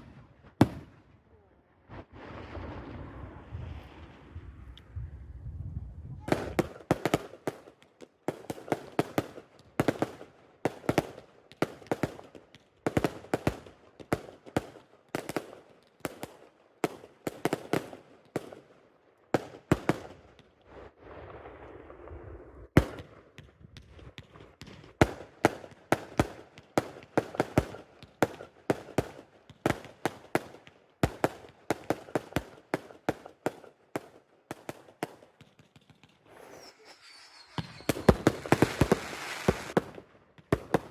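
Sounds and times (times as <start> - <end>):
fireworks bangs and cracks: 0.0 - 1.0, 6.2 - 18.6, 19.4 - 40.9
fireworks hiss: 36.3 - 39.8.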